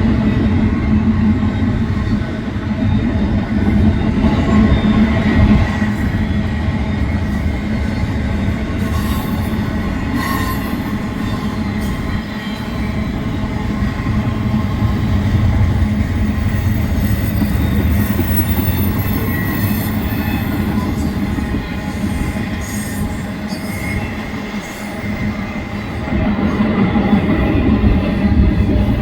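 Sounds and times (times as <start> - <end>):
train wheels rumbling on rails: 0.0 - 29.0
faint high wheel squeal: 8.8 - 13.1, 16.4 - 25.7.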